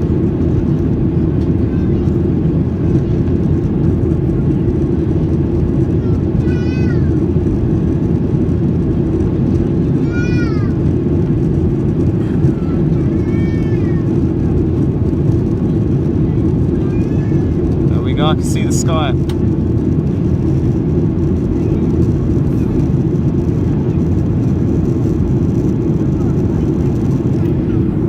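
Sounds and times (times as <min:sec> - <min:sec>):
airplane cabin engine noise: 0:00.0 - 0:28.0.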